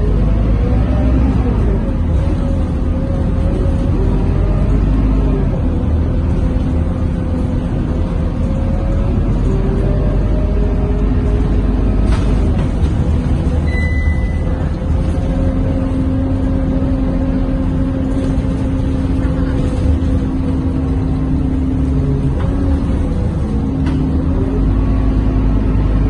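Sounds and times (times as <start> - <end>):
bus diesel engine rumble: 0.0 - 26.0
brief high tone: 13.7 - 14.5.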